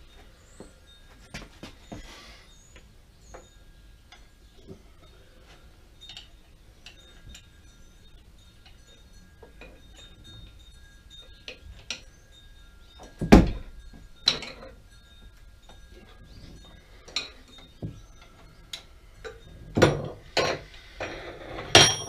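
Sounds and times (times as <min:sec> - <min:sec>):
metal tools clinking and rattling: 0:12.9 - 0:22.0.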